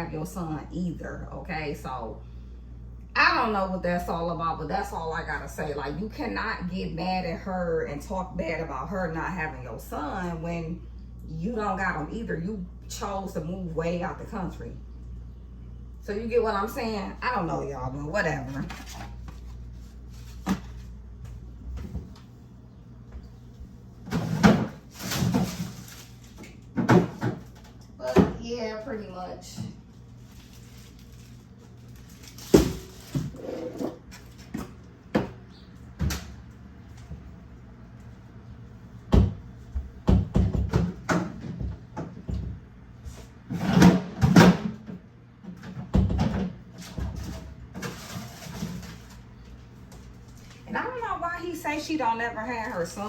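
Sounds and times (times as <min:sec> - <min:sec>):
sharp knocks in kitchen: 0:39.1 - 0:42.6.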